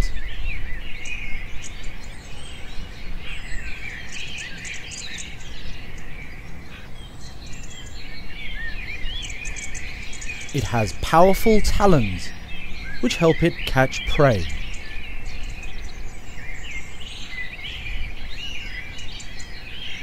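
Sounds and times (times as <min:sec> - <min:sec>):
small birds chirping: 0:00.0 - 0:20.0
low steady background hum: 0:09.8 - 0:17.2.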